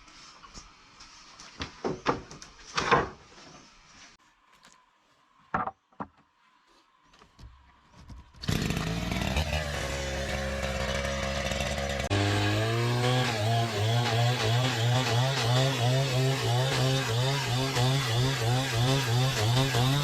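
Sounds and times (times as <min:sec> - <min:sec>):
small engine running: 0:08.4 - 0:20.0.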